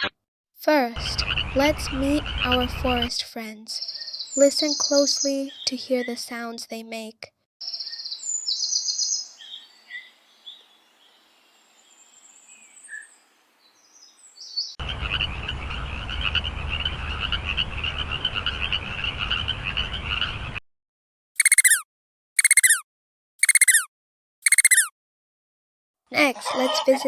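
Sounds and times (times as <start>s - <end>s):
birds chirping: 3.8s - 6.2s, 7.6s - 14.8s, 21.4s - 21.8s, 22.4s - 22.8s, 23.4s - 24.9s
frogs croaking: 21.4s - 21.8s, 22.4s - 22.8s, 23.4s - 23.8s, 24.4s - 24.9s
quick falling repeated calls: 21.4s - 21.8s, 22.4s - 22.8s, 23.4s - 24.9s.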